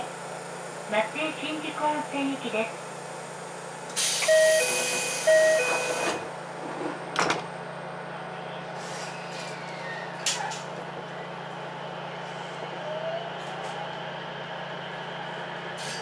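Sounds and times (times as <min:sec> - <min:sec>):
railcar electrical hum: 0:00.0 - 0:16.0
sliding doors shutting with knock: 0:05.5 - 0:07.5.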